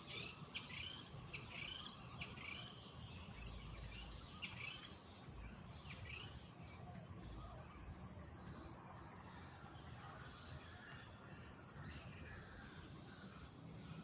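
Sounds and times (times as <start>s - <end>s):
birds chirping: 0.0s - 8.4s
steady background hiss: 0.0s - 14.0s.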